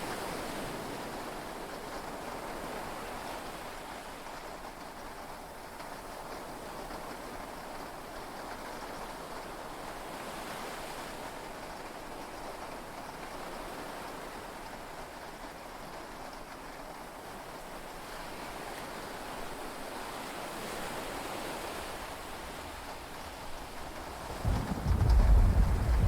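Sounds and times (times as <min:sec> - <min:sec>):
sea waves: 0:20.1 - 0:26.0
heavy rain: 0:22.2 - 0:26.0.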